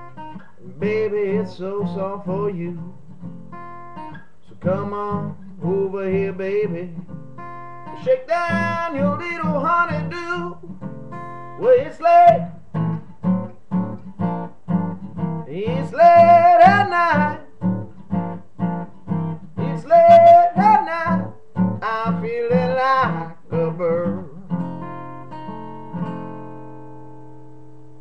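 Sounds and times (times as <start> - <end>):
acoustic guitar strumming: 0.0 - 28.0
man singing: 0.5 - 3.1, 4.5 - 7.1, 7.9 - 10.7, 11.6 - 12.6, 15.4 - 17.6, 19.5 - 24.6.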